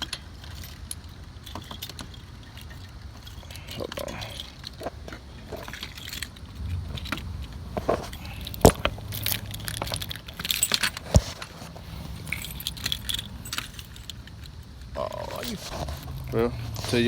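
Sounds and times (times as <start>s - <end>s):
key in door lock: 5.4s - 14.8s
key ring jangling: 5.5s - 14.8s.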